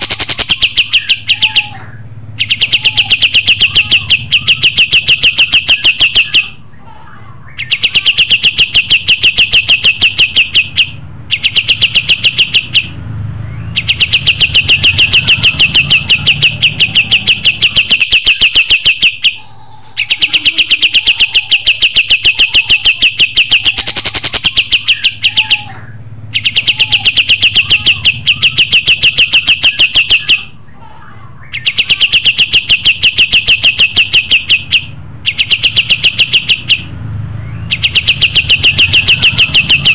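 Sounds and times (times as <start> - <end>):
bird rapid chattering song: 0.0 - 6.8, 7.4 - 30.8, 31.4 - 39.9.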